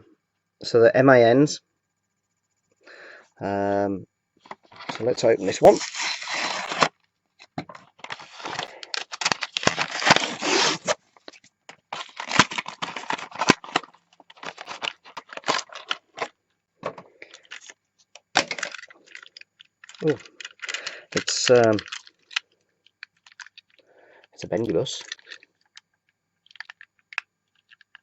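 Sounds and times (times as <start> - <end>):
packaging being torn open: 4.8 - 7.0, 8.0 - 11.0, 11.7 - 16.3, 18.4 - 22.4.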